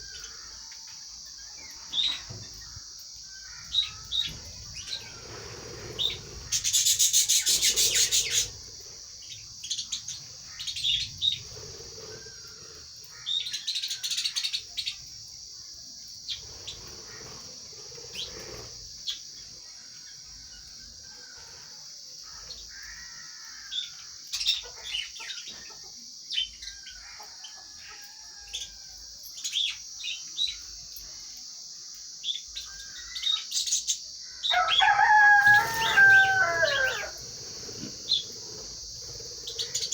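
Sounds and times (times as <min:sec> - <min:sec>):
harsh bird chatter: 0:03.4 - 0:15.0, 0:16.2 - 0:19.5, 0:34.6 - 0:39.9
lovebirds chirping: 0:34.5 - 0:39.9.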